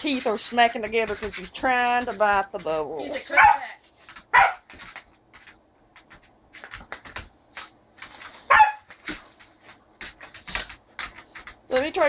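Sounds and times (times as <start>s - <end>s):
puppy barking: 3.1s - 4.7s, 8.5s - 8.9s.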